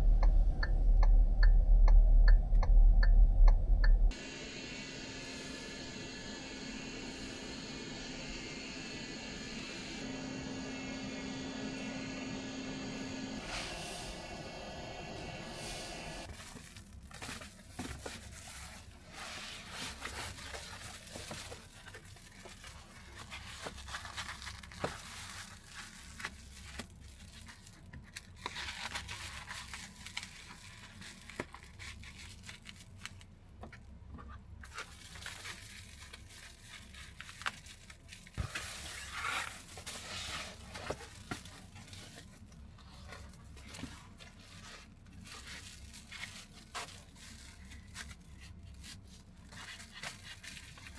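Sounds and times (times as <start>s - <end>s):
rustling and crinkling handling noise: 16.2s - 50.9s.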